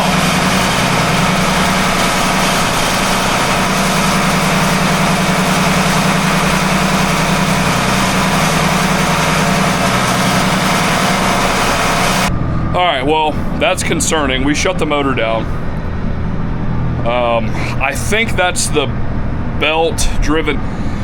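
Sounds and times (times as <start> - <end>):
metal-on-metal grinding: 0.0 - 12.8
marine diesel engine running: 0.0 - 21.0.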